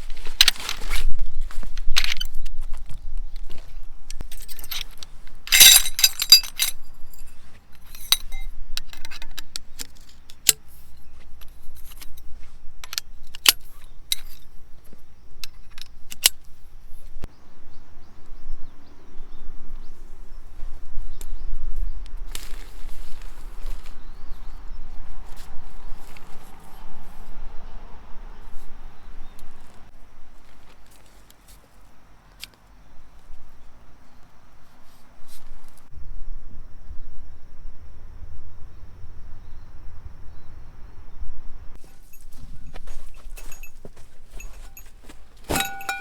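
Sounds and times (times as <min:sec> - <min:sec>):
small metal objects clinking: 0:04.2 - 0:09.4, 0:41.8 - 0:46.0.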